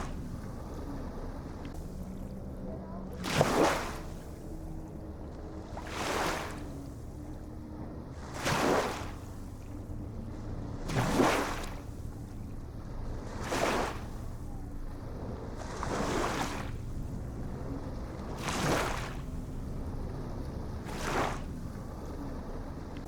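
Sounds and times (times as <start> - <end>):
faint low hum: 0.0 - 3.3
waves swishing: 0.0 - 7.5, 8.1 - 23.0.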